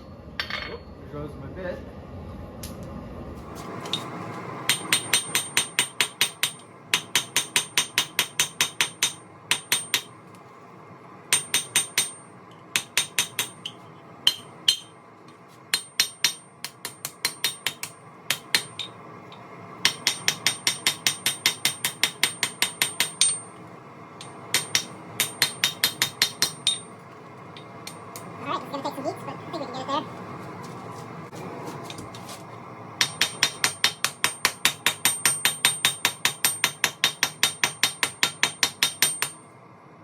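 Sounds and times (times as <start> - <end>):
hammer striking steel on anvil: 4.7 - 10.2, 11.3 - 15.0, 15.7 - 23.6, 24.2 - 27.0, 27.6 - 28.3, 33.0 - 39.5.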